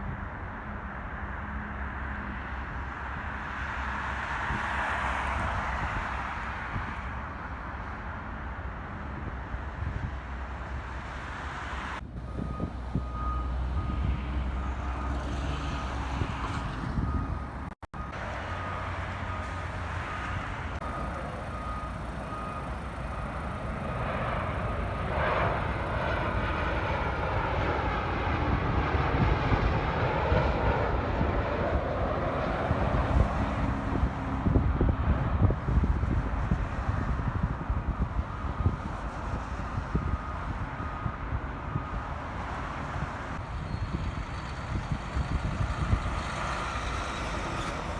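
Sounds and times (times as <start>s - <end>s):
jet engines whining: 18.1s - 34.9s.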